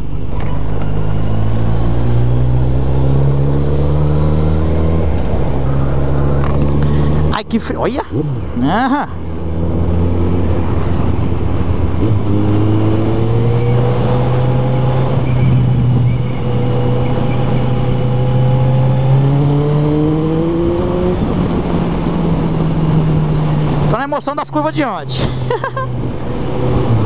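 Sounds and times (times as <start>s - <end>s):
motorcycle engine accelerating: 0.0s - 24.0s
wind rush: 19.3s - 23.9s.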